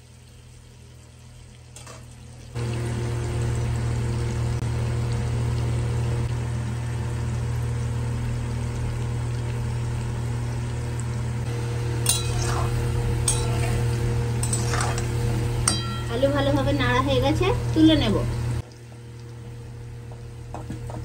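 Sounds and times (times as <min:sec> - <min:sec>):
oil sizzling in a pan: 0:00.0 - 0:21.0
steady low hum: 0:00.2 - 0:21.0
metal spatula clinking on pan: 0:12.0 - 0:13.8, 0:15.6 - 0:16.2.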